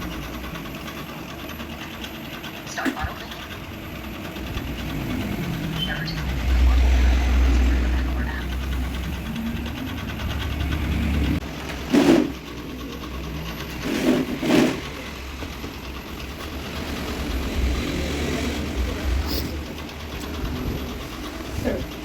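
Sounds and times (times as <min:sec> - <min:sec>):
sharp knocks and clatters: 0:08.6 - 0:22.0.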